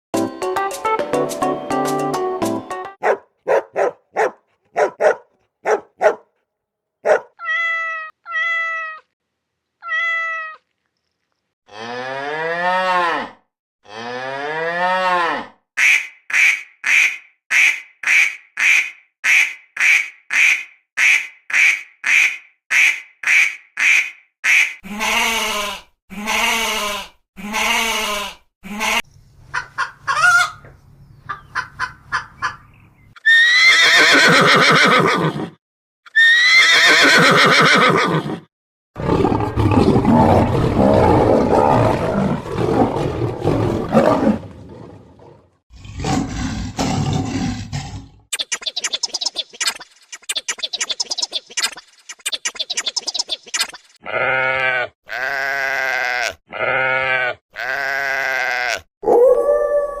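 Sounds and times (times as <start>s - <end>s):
dog barking: 3.0s - 6.4s, 7.0s - 7.4s
cat meowing: 7.4s - 9.1s, 9.8s - 10.7s
cow mooing: 11.7s - 15.6s.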